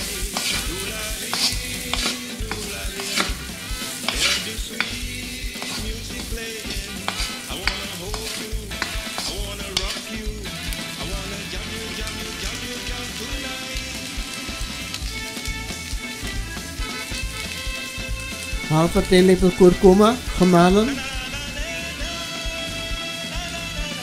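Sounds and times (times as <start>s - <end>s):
wooden spoon scraping a pan: 0.0s - 11.2s
potatoes sizzling in oil: 0.0s - 24.0s.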